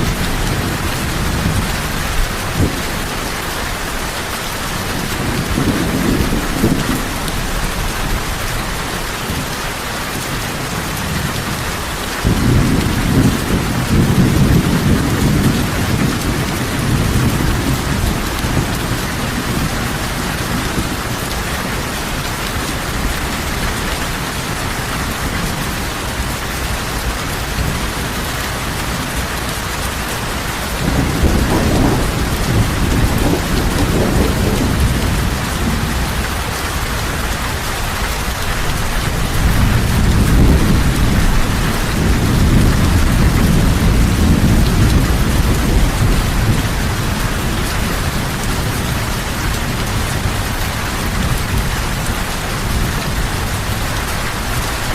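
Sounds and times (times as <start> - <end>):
heavy rain falling: 0.0 - 54.9
thunder rolling: 4.8 - 8.4, 12.2 - 23.6, 30.2 - 37.2, 38.6 - 54.9.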